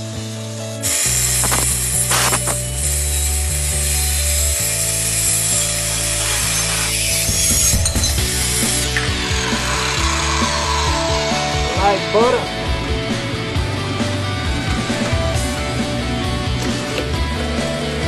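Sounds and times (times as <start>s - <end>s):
power saw cutting steel: 0.0s - 12.9s.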